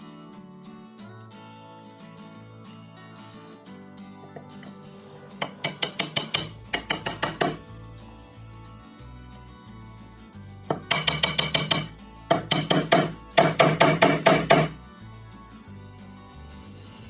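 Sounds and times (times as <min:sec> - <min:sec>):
music with steady beat: 0:10.6 - 0:15.3.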